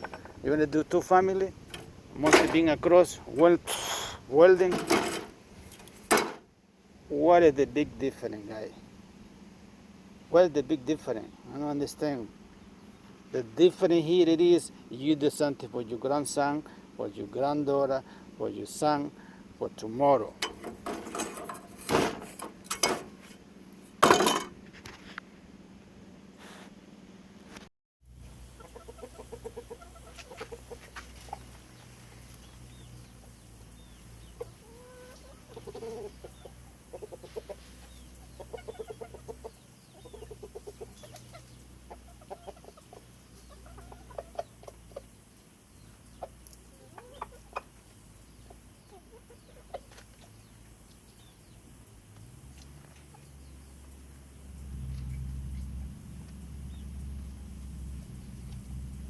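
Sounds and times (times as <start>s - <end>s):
steady low hum: 28.1s - 59.0s
chickens clucking: 28.2s - 54.0s.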